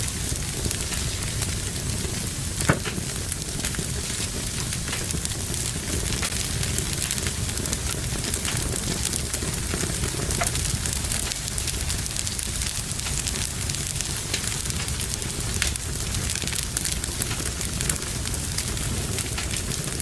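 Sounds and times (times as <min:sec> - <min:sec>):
fire crackling and hissing: 0:00.0 - 0:20.0
loud pop from fire: 0:00.0 - 0:20.0.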